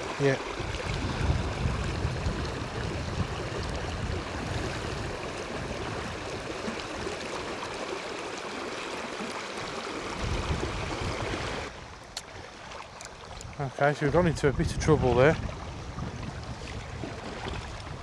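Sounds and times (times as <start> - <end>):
river water flowing: 0.0 - 14.1
wind buffeting microphone: 0.2 - 7.3, 10.1 - 11.7, 13.3 - 18.0.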